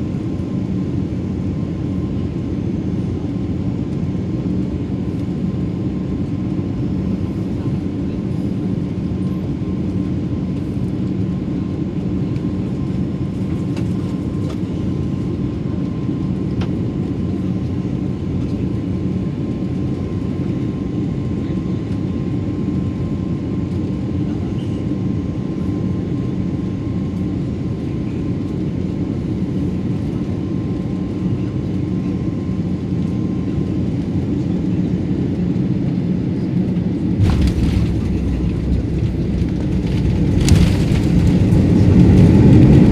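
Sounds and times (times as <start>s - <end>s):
airplane cabin engine rumble: 0.0s - 42.9s
faint steady engine whine: 0.0s - 42.9s
sudden thump: 37.2s - 42.4s
airflow: 37.2s - 42.9s.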